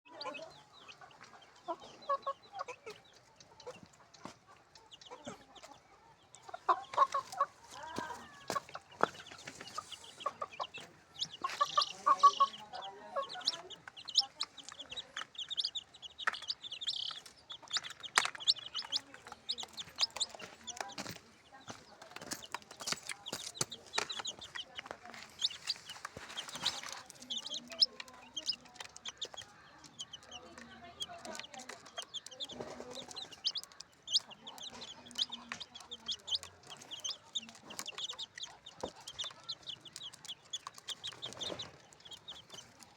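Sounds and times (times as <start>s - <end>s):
chicks cheeping: 0.1s - 42.9s
low clucking calls: 6.4s - 42.9s.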